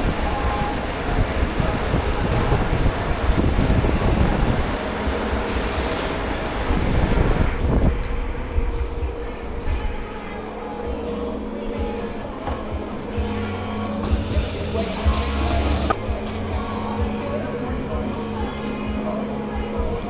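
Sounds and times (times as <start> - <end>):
water hissing: 0.0 - 7.9, 14.0 - 16.0
dishwashing machinery rumble: 0.0 - 9.4, 11.0 - 18.5.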